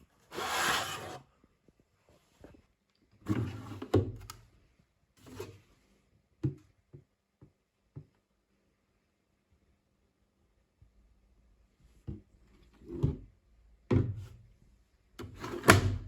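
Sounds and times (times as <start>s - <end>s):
rustling and rubbing: 0.2s - 1.3s.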